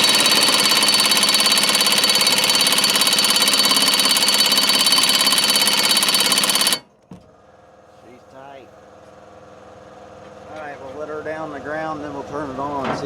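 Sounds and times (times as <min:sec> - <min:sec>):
impact wrench hammering: 0:00.0 - 0:06.9.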